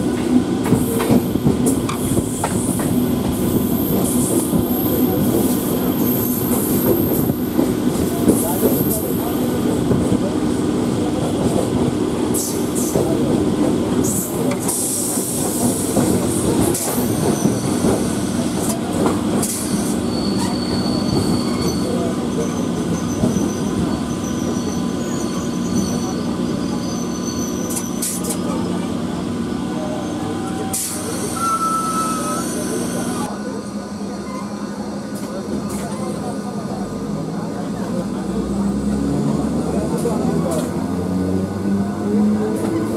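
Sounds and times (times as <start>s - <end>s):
electric train rumbling on rails: 0.0s - 42.9s
high-pitched wheel squeal: 19.8s - 27.9s, 31.3s - 32.8s.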